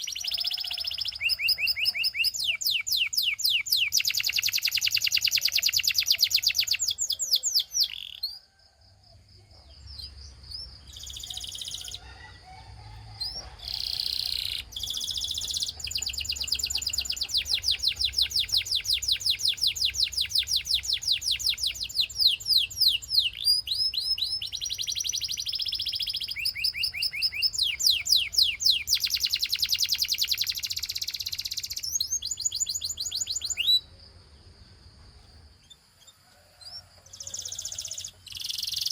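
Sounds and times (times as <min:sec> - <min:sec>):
canary trilling: 0:00.0 - 0:08.4, 0:10.7 - 0:12.4, 0:13.2 - 0:33.9.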